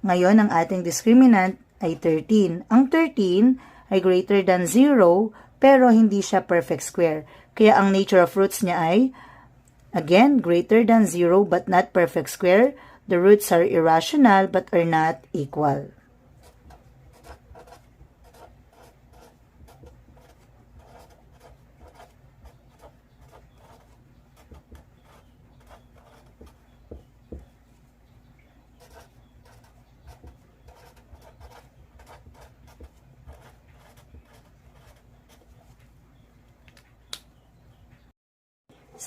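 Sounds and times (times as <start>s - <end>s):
steady low hum: 14.9s - 37.7s
pen scratching while handwriting: 16.4s - 27.5s, 28.8s - 35.7s.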